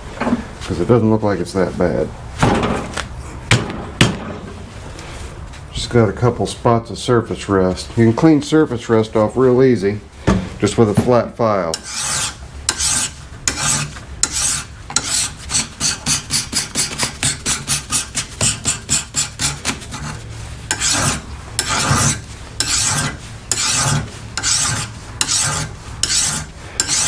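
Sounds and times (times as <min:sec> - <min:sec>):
file rasping on steel shaft: 0:11.7 - 0:27.0.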